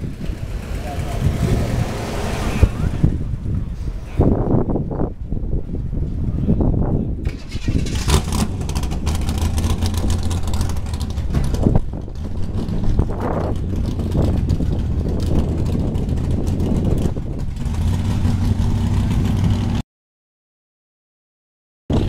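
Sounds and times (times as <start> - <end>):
car engine idling: 7.3 - 19.7.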